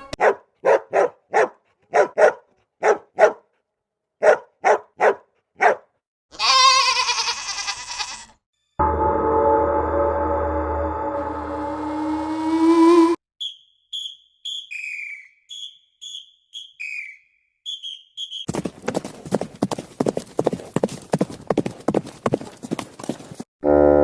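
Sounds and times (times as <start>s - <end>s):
high chirping calls: 13.4s - 18.5s
irregular clip-clopping: 18.5s - 23.5s.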